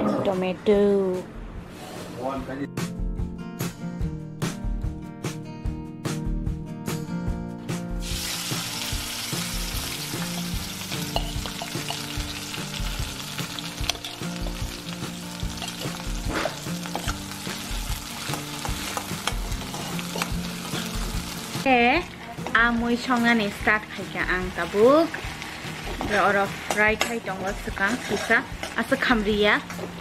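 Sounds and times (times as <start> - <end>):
onion sizzling in hot oil: 8.0 - 29.9
steel ladle clinking wok: 10.3 - 12.3, 13.8 - 14.6, 15.5 - 17.2, 18.3 - 21.0.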